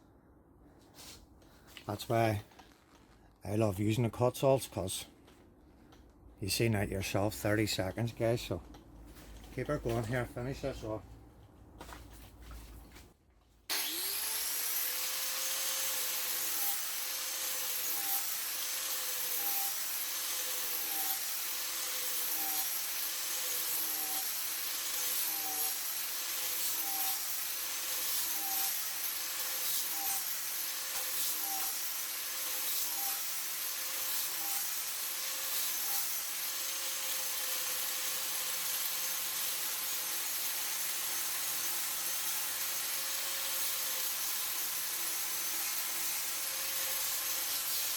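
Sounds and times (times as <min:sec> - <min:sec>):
angle grinder grinding wood: 0:13.7 - 0:47.9.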